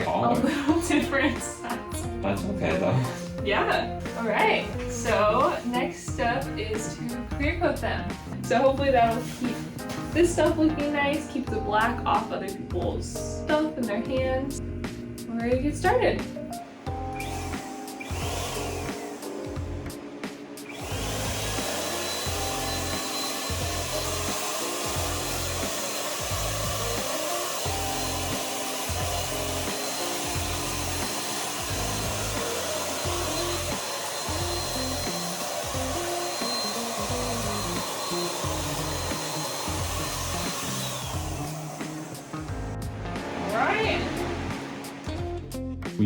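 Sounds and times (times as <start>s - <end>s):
background music with bass line: 0.0s - 20.1s, 39.8s - 46.0s
spray gun hissing: 8.8s - 10.3s, 16.7s - 45.2s.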